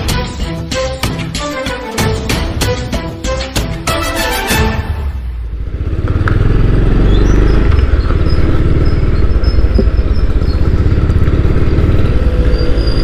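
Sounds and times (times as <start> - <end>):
motorcycle engine puttering: 5.5 - 13.0.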